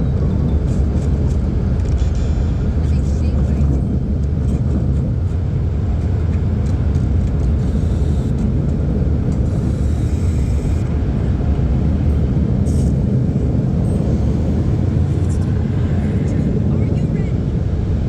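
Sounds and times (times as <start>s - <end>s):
car wash machinery rumble: 0.0s - 18.0s.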